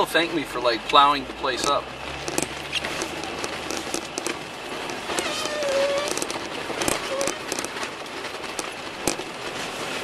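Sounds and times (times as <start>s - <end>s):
tyres churning snow: 0.0s - 10.0s
short squeak: 5.0s - 7.5s.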